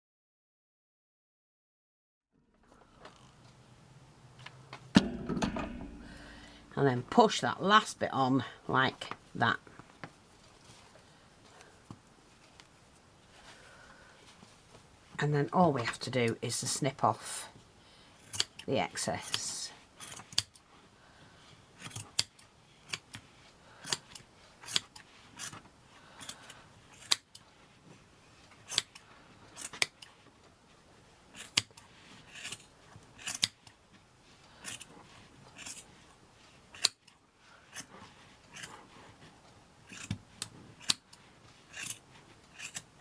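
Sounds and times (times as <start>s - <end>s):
scissors snipping: 41.7s - 42.9s.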